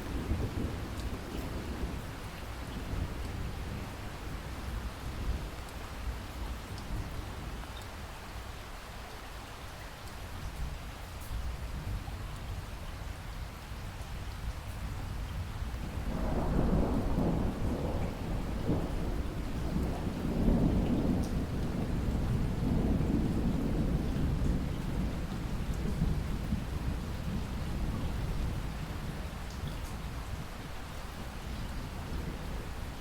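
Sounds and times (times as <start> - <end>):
long roll of thunder: 0.0 - 5.6, 15.4 - 29.6
steady rain falling: 0.0 - 33.0.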